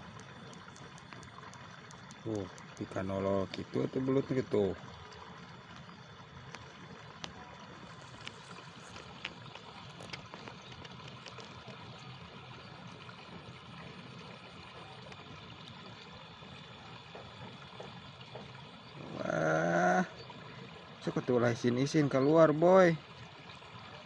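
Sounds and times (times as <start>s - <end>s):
soft clicks and pops in water: 0.0s - 3.8s, 4.8s - 13.5s
water trickling: 0.0s - 24.0s.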